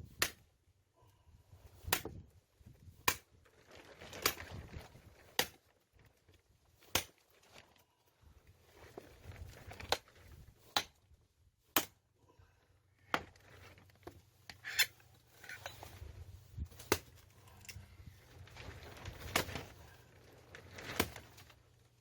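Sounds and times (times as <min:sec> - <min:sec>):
axe chopping firewood: 0:00.0 - 0:00.5, 0:01.8 - 0:02.2, 0:03.0 - 0:03.3, 0:05.3 - 0:05.6, 0:06.8 - 0:07.2, 0:10.7 - 0:11.0, 0:11.7 - 0:12.0, 0:16.7 - 0:17.2, 0:20.9 - 0:21.2.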